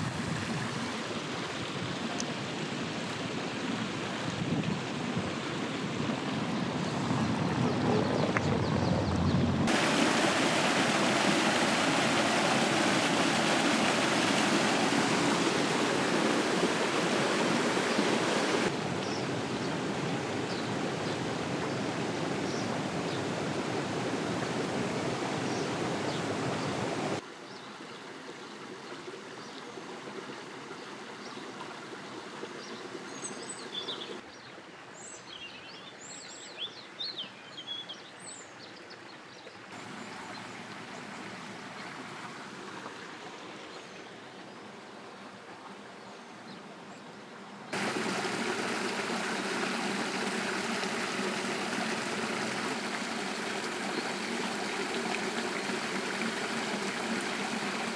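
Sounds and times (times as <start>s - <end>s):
small birds chirping: 6.5s - 9.8s
boiling water and steam hissing: 9.6s - 27.2s, 47.7s - 57.9s.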